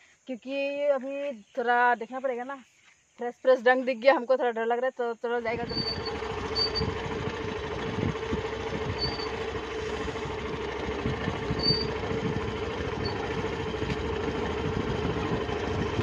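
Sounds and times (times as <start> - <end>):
motorcycle engine running: 5.4 - 16.0.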